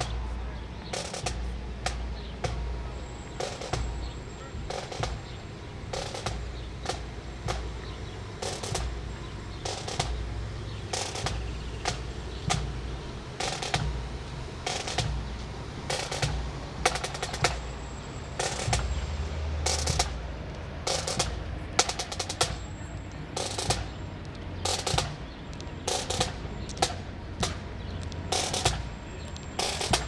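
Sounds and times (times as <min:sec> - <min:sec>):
snare drum hits: 0:18.4 - 0:20.2, 0:23.4 - 0:24.0, 0:24.7 - 0:25.3, 0:25.9 - 0:27.8, 0:28.4 - 0:29.0, 0:29.6 - 0:30.0.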